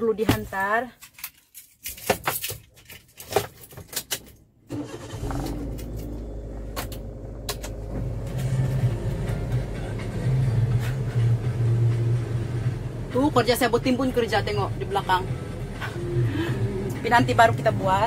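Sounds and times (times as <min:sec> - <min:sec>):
car engine starting and idling: 0:04.7 - 0:18.0.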